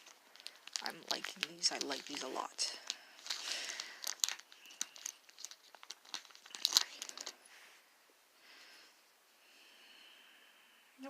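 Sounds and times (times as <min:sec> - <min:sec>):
tape peeling and crinkling: 0:00.0 - 0:07.4
faint rustling: 0:00.0 - 0:09.5.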